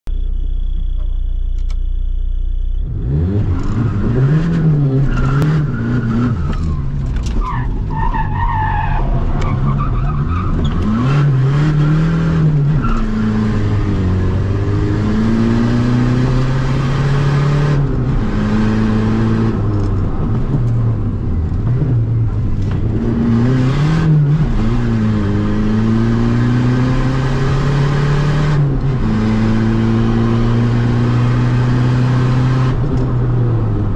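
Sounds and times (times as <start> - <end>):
diesel car engine revving: 0.3 - 33.9
tyre squeal: 3.6 - 13.3.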